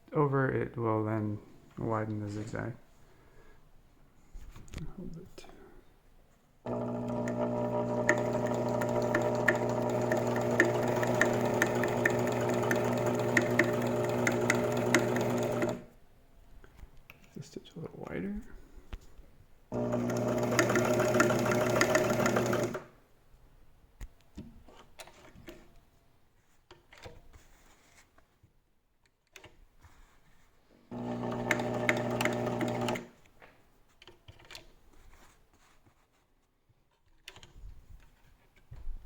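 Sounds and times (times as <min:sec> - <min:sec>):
sewing machine motor and needle: 0:06.7 - 0:15.9, 0:19.7 - 0:22.9, 0:30.9 - 0:33.1.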